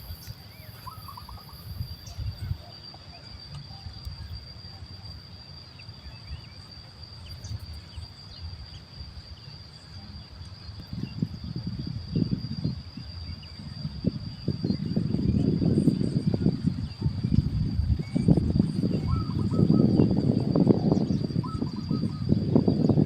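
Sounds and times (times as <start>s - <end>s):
faint bird chirps: 0.0s - 11.4s, 12.0s - 23.0s
insect drone: 0.0s - 23.0s.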